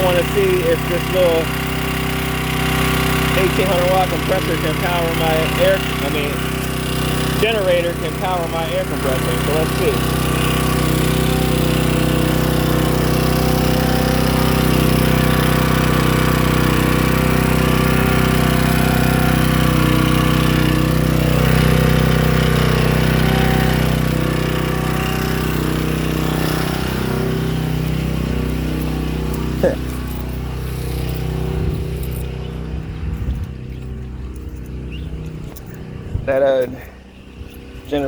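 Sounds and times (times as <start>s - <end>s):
generator engine running: 0.0s - 38.0s.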